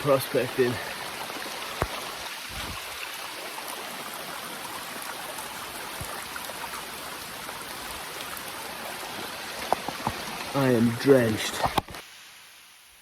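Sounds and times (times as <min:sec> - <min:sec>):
river rushing: 0:00.0 - 0:12.3
rain falling: 0:00.0 - 0:13.0.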